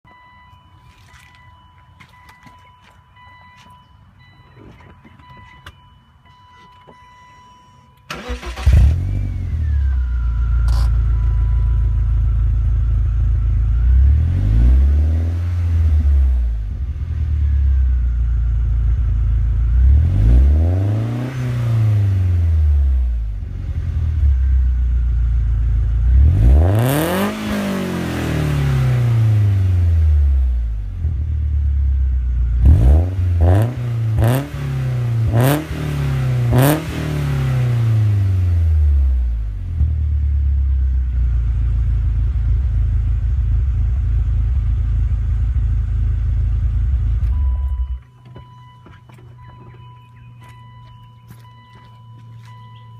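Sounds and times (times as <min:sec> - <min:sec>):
car engine starting and revving: 0:08.1 - 0:51.8.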